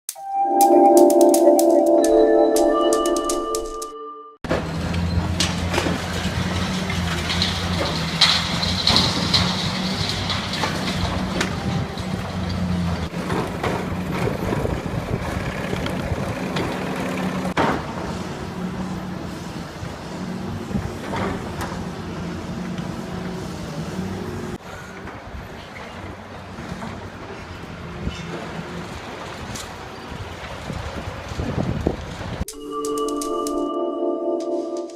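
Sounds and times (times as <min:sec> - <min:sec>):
falling debris crashing: 0:05.3 - 0:12.4.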